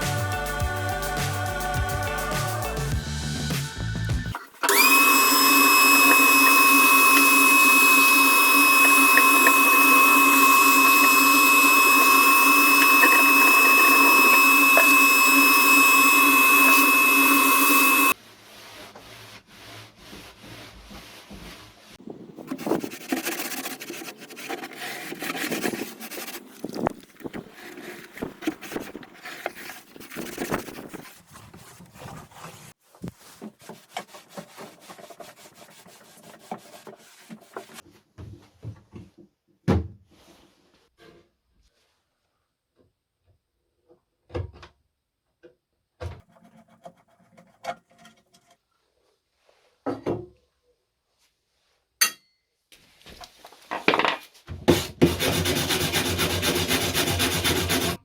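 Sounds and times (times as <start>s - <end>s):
power tool whining: 4.6s - 18.2s
hand tool scraping wood: 4.7s - 21.4s, 22.4s - 37.8s, 46.2s - 48.6s, 54.7s - 58.0s.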